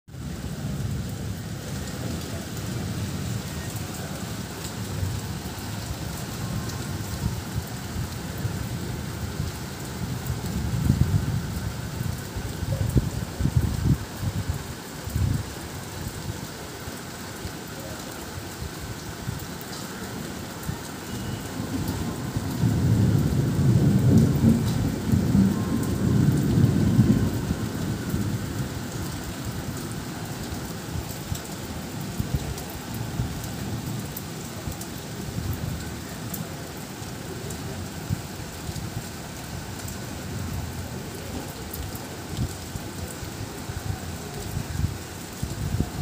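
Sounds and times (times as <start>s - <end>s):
steady rain falling: 0.1s - 46.0s
thunder rumble: 21.5s - 29.9s.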